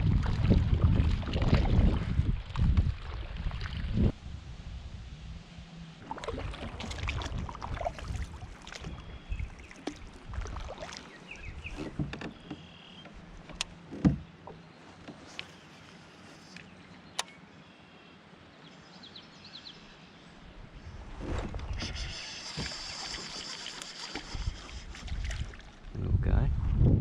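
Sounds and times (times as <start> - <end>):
wind buffeting microphone: 0.0 - 10.7, 20.6 - 23.0, 24.2 - 27.0
kayak knocks and clicks: 11.4 - 15.6.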